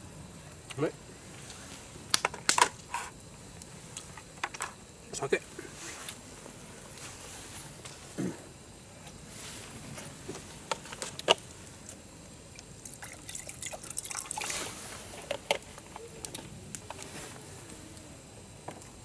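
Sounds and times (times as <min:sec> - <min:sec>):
liquid pouring: 0:12.8 - 0:14.8.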